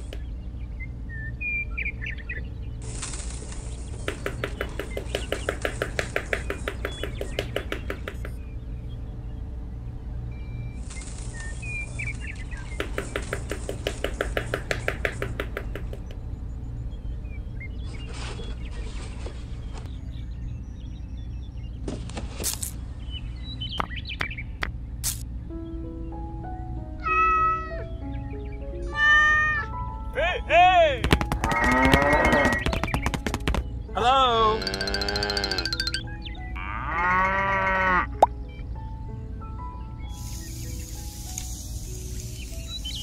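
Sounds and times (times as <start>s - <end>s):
bird chirps: 0.0s - 2.8s, 3.6s - 21.9s, 22.7s - 28.9s, 31.4s - 36.6s, 38.1s - 43.0s
steady low hum: 0.0s - 27.0s
rapid even clicking: 4.0s - 8.4s, 12.7s - 16.1s, 31.0s - 33.7s.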